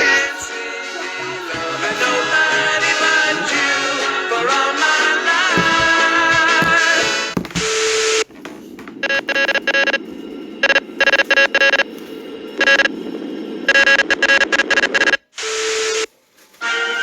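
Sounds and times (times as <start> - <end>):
electronic beeps: 9.0 - 10.0, 10.6 - 11.9, 12.6 - 13.0, 13.6 - 16.0.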